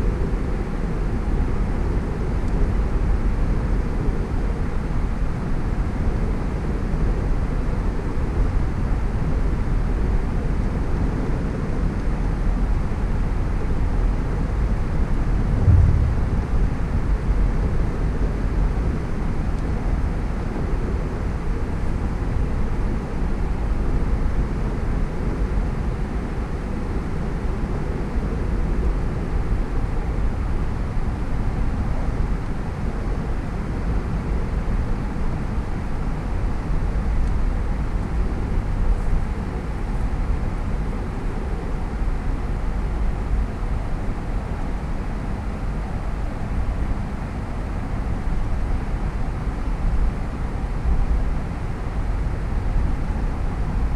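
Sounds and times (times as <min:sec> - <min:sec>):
car road noise: 0:15.3 - 0:17.6.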